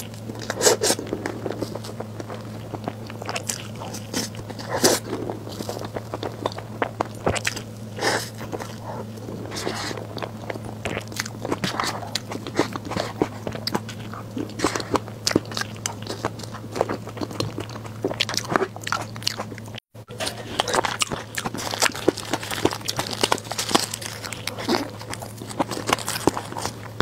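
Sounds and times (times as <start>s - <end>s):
steady low hum: 0.0s - 27.0s
wet chewing mouth sounds: 0.0s - 27.0s.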